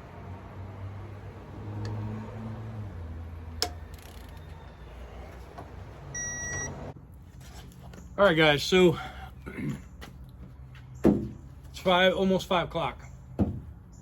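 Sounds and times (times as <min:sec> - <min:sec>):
short electronic beep: 0:06.2 - 0:06.8.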